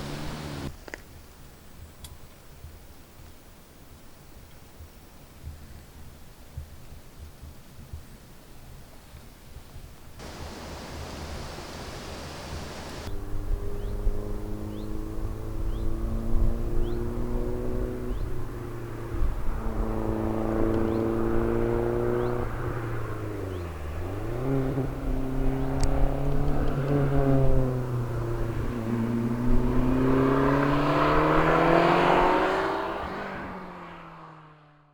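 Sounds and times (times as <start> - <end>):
car engine pulling under load: 0.0 - 0.7, 10.2 - 34.2.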